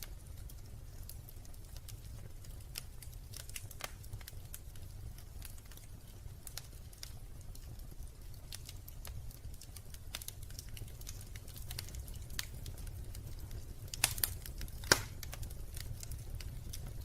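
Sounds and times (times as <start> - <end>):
low rumble of fire: 0.0 - 17.0
wood fire crackling: 0.0 - 17.0
loud fire pop: 14.1 - 15.2.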